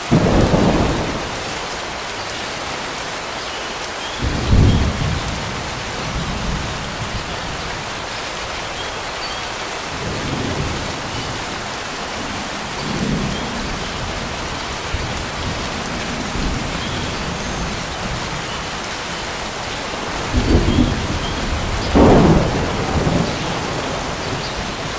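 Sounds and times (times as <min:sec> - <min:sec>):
rain falling on water: 0:00.0 - 0:24.9
thunder rumbling: 0:00.1 - 0:01.5, 0:04.2 - 0:08.0, 0:19.5 - 0:24.9.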